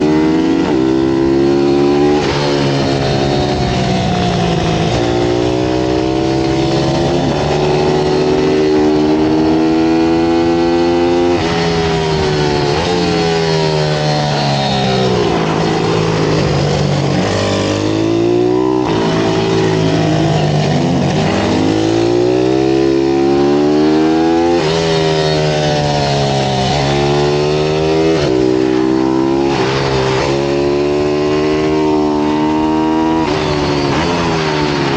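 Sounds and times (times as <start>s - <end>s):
pit bike engines revving: 0.0s - 34.9s.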